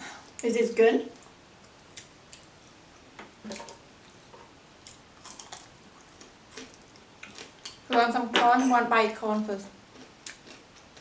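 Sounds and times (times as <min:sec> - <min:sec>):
chewing: 0:04.8 - 0:07.8, 0:09.9 - 0:11.0.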